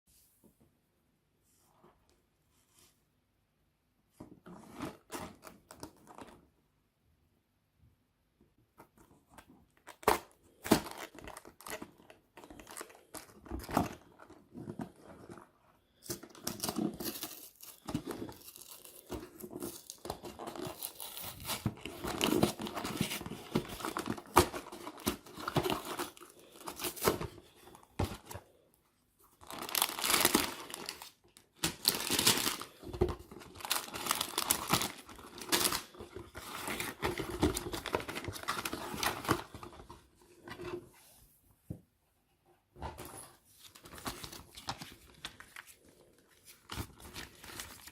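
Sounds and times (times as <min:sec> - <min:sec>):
plastic bags tearing and crinkling: 0:29.4 - 0:39.6.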